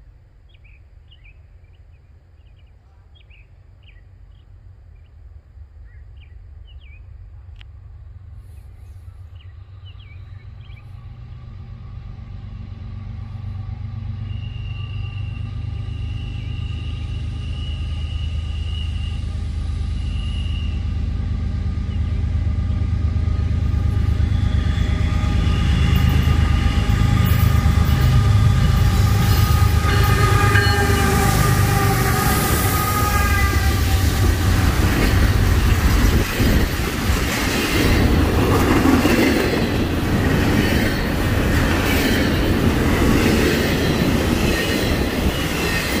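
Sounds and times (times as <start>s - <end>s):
diesel locomotive rumble: 5.4s - 46.0s
wheels rattling on rails: 20.8s - 46.0s.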